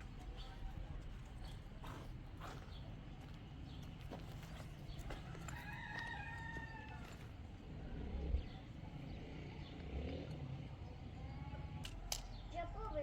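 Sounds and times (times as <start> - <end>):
rooster crowing: 5.4 - 7.1.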